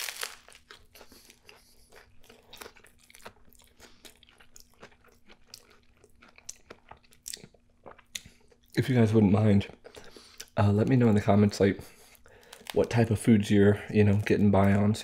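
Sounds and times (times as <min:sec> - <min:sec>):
crunchy bite into sandwich: 0:00.0 - 0:04.2
crunchy chewing: 0:00.0 - 0:08.8.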